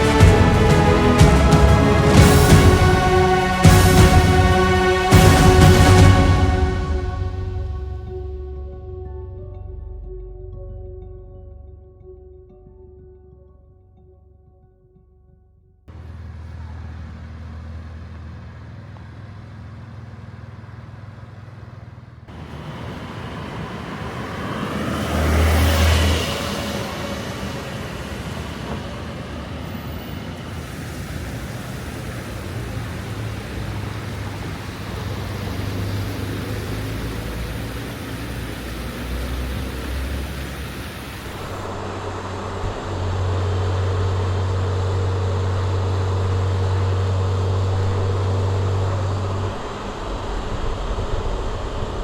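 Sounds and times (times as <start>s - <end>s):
road and traffic noise: 0.0s - 9.0s, 15.9s - 52.0s
car engine hum: 15.9s - 52.0s.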